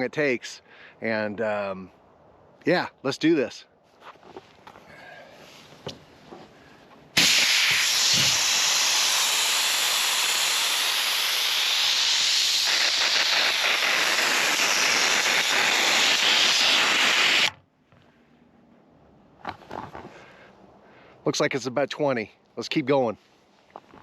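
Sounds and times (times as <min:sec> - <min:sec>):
air hissing out of tires: 0:07.2 - 0:17.6.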